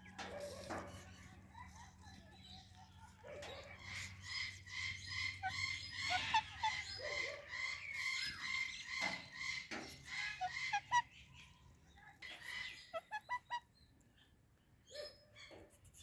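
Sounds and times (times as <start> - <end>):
parrots chattering: 0.1 - 11.6, 12.2 - 13.7
parrot chirps: 3.8 - 11.3, 12.3 - 13.8
parrot squawks: 5.4 - 7.2, 10.1 - 11.2, 12.5 - 13.6.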